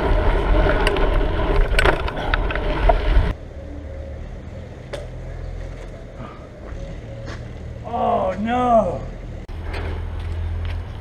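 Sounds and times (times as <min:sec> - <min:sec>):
mountain bike rattling over dirt: 0:00.0 - 0:03.3
low rumble: 0:00.0 - 0:07.9
bike clicks and knocks: 0:04.8 - 0:06.0.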